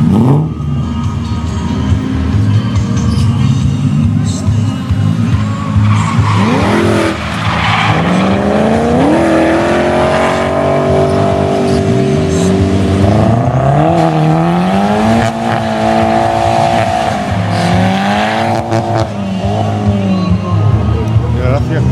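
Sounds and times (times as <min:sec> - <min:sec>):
tyres squealing: 0:05.6 - 0:12.7
car engine revving hard: 0:05.8 - 0:20.1.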